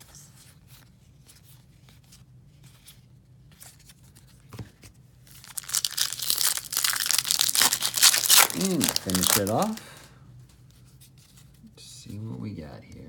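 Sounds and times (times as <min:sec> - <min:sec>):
foil wrapper torn and crinkled: 0:05.3 - 0:10.0.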